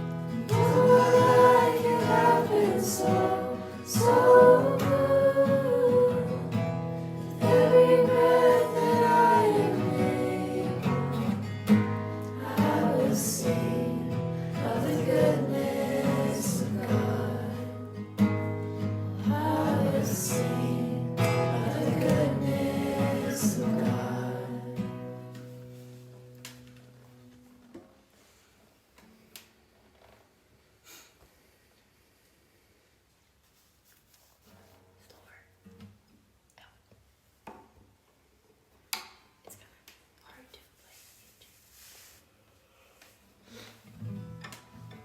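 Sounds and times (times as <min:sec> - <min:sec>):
strummed acoustic guitar: 0:00.0 - 0:27.4, 0:43.8 - 0:45.0
voices singing together: 0:00.3 - 0:25.5.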